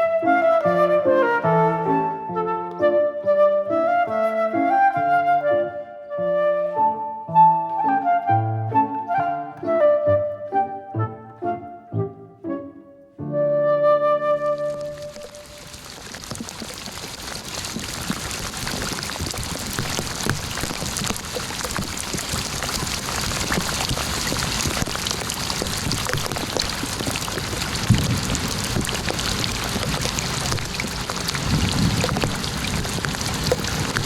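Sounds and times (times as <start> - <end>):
rain drops hitting a surface: 14.5 - 34.0.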